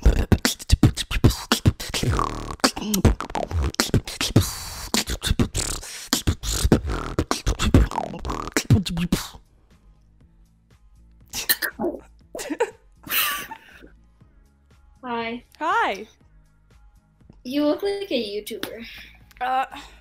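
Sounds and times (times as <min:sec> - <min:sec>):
woman beatboxing: 0:00.0 - 0:09.4, 0:11.4 - 0:12.0.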